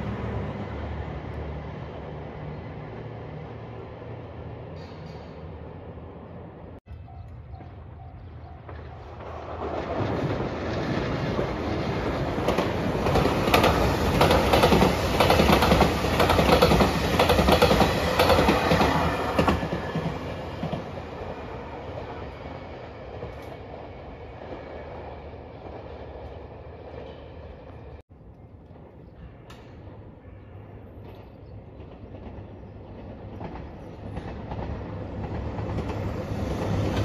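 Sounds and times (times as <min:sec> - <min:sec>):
train wheels clattering over rail joints: 0:08.6 - 0:20.9.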